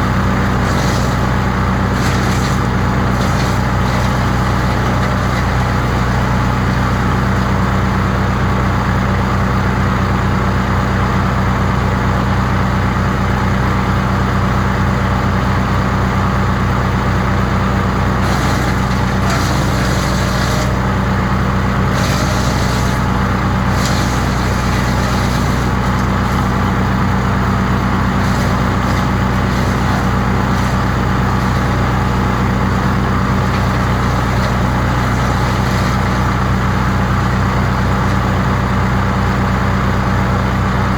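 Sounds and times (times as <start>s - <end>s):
wood chipper engine humming: 0.0s - 40.9s.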